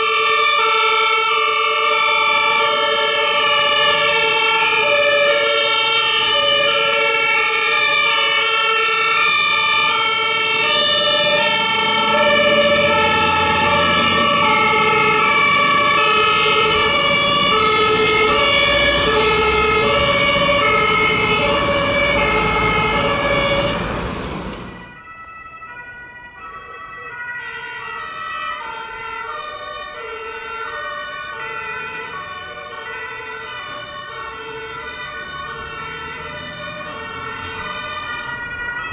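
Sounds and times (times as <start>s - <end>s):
two-tone emergency sirens: 0.0s - 38.9s
heavy truck engine rumble: 9.4s - 25.0s.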